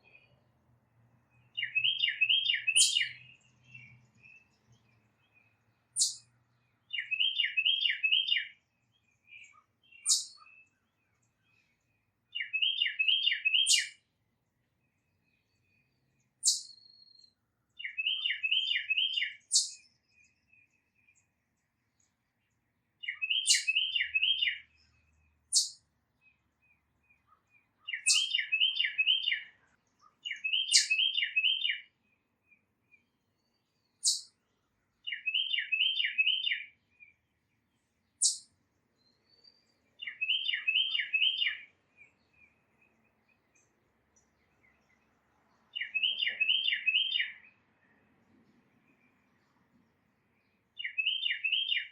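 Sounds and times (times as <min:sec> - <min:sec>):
bird whistled song: 0:01.4 - 0:06.3, 0:06.9 - 0:11.7, 0:12.3 - 0:14.0, 0:15.2 - 0:21.2, 0:23.0 - 0:25.8, 0:27.1 - 0:31.9, 0:32.9 - 0:34.4, 0:35.0 - 0:37.2, 0:38.2 - 0:43.7, 0:45.7 - 0:47.6, 0:50.4 - 0:51.9
sharp high bird calls: 0:01.6 - 0:03.4, 0:06.0 - 0:06.3, 0:09.4 - 0:10.7, 0:12.4 - 0:14.0, 0:16.4 - 0:17.1, 0:17.8 - 0:19.8, 0:23.0 - 0:24.8, 0:25.5 - 0:25.8, 0:27.3 - 0:29.6, 0:30.3 - 0:31.9, 0:34.0 - 0:34.4, 0:35.1 - 0:36.8, 0:38.2 - 0:38.5, 0:40.0 - 0:41.7, 0:45.8 - 0:47.5, 0:50.8 - 0:51.9.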